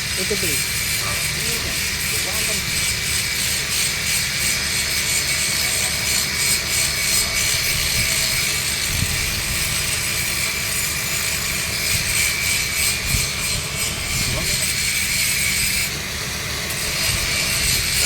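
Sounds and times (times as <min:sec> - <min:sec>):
welding arc hissing: 0:00.0 - 0:18.0.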